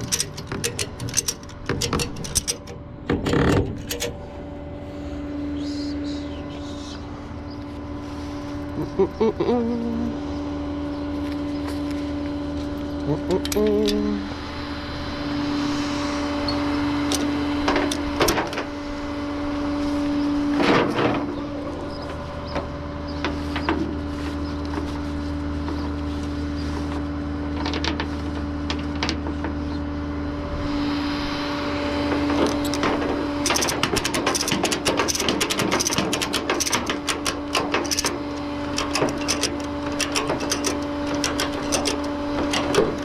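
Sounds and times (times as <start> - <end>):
metal knocks and clanks: 0.0 - 4.2, 17.0 - 18.7, 32.1 - 43.0
truck engine humming: 0.0 - 43.0
fast clicks: 32.4 - 43.0.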